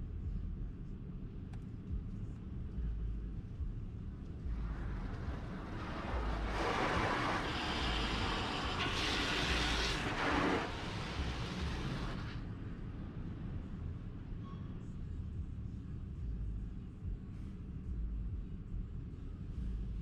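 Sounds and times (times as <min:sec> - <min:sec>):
steady low rumble: 0:00.0 - 0:20.0
car wash rushing hiss: 0:04.4 - 0:12.5.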